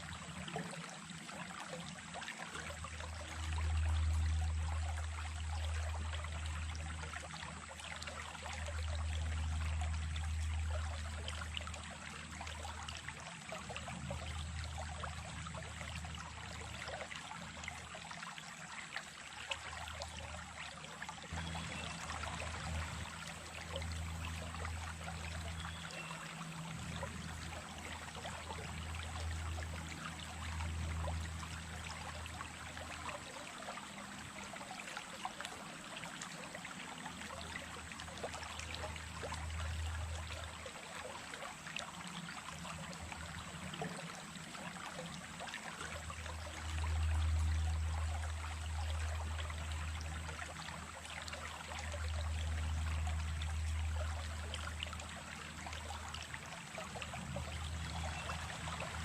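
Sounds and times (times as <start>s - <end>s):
stream trickling: 0.0s - 59.0s.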